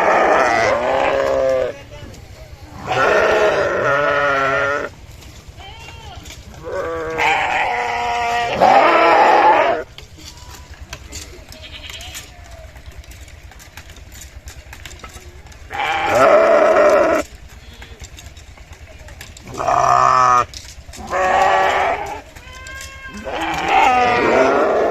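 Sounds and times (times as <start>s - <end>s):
sheep bleating: 0.0s - 1.8s, 2.7s - 5.0s, 5.6s - 9.9s, 11.5s - 12.4s, 15.6s - 18.1s, 19.4s - 24.9s.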